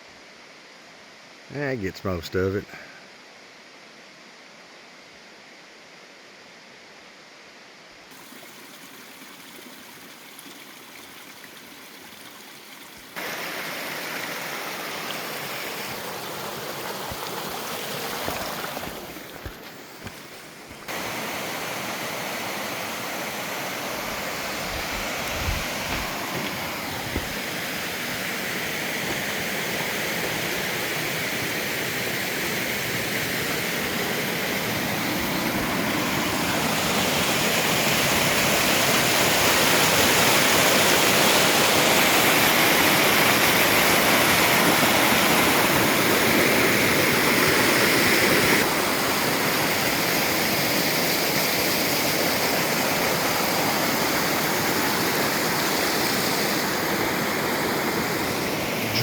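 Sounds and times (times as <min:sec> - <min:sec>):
waterfall rushing: 0:13.2 - 0:59.0.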